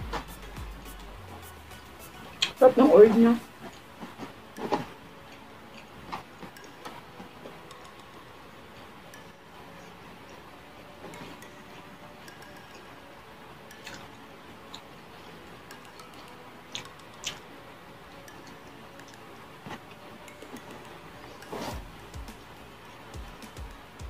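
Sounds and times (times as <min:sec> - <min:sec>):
person chewing: 0:13.8 - 0:14.1, 0:16.7 - 0:17.4.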